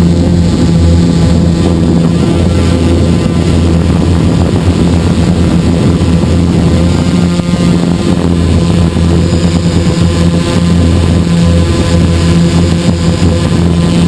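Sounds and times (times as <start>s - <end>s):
drone motors humming: 0.0s - 14.0s.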